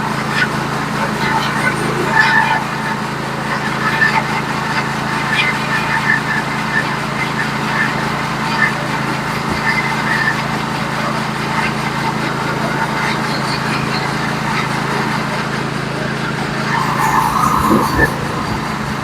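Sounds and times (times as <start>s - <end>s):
brief high-pitched sound: 16.6s - 19.0s.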